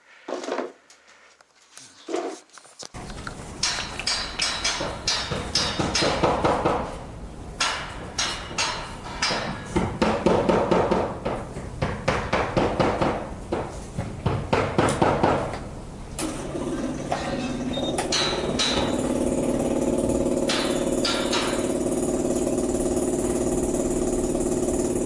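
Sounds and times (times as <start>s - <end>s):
hammer striking metal: 3.6s - 6.8s, 7.6s - 11.1s, 18.1s - 19.0s, 20.5s - 21.7s.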